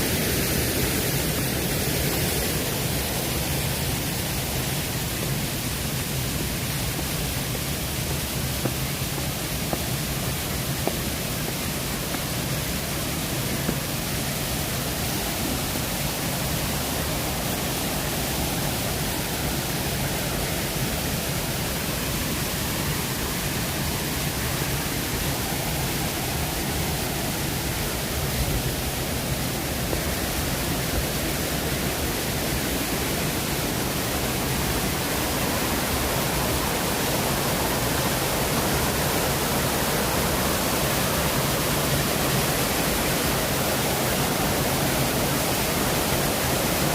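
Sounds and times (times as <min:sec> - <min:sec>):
waterfall rushing: 0:00.0 - 0:46.9.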